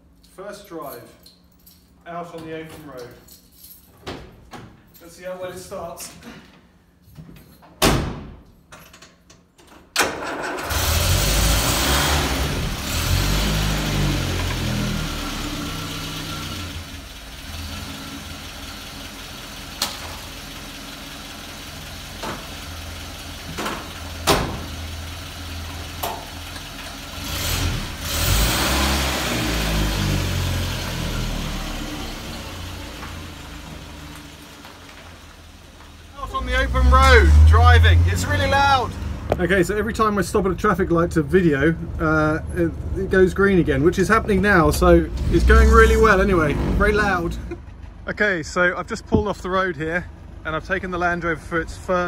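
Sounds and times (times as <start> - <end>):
car engine starting and revving: 10.2 - 47.6
engine clicks and knocks: 22.0 - 27.0.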